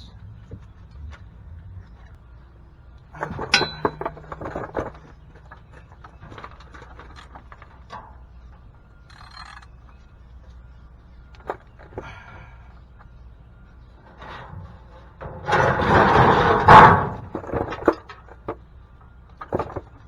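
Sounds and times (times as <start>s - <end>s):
metal hand tools clinking: 3.2s - 5.7s.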